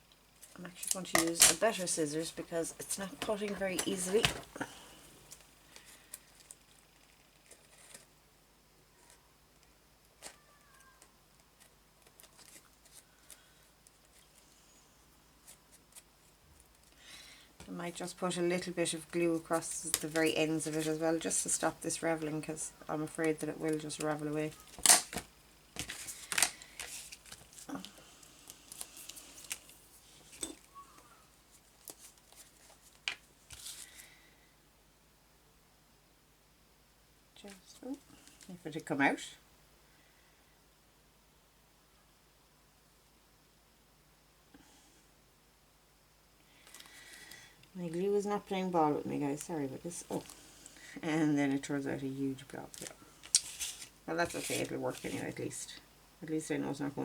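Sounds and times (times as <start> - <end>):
paper and craft materials handled: 0.4 - 8.1, 10.2 - 14.5, 17.6 - 34.1, 52.4 - 55.6.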